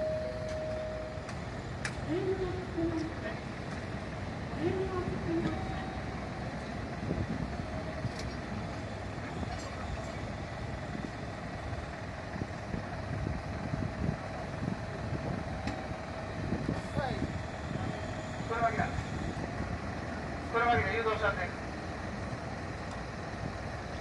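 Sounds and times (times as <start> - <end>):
heavy vehicle engine idling: 0.0 - 24.0.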